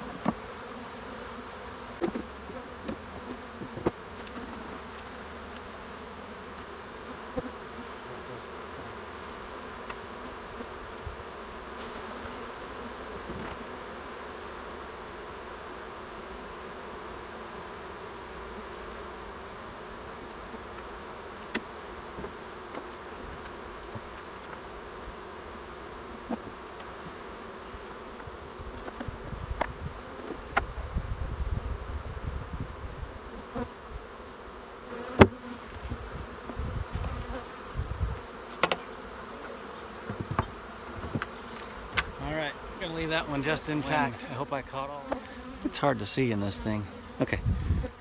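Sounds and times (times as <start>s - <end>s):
honeybees buzzing: 0.0s - 48.0s
hive equipment knocks and clicks: 38.6s - 38.9s, 40.1s - 42.1s.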